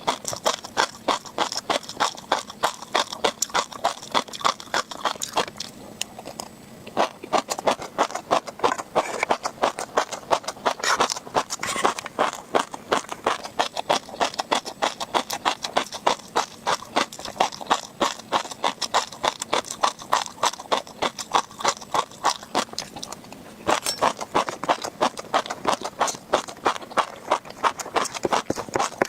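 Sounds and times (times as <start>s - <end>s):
fish roe crunching and popping: 0.0s - 29.0s.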